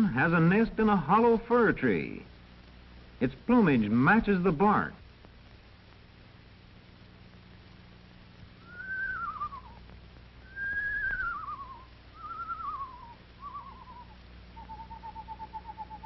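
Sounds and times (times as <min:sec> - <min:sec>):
owl whinny call: 0:08.6 - 0:09.8, 0:10.5 - 0:16.0.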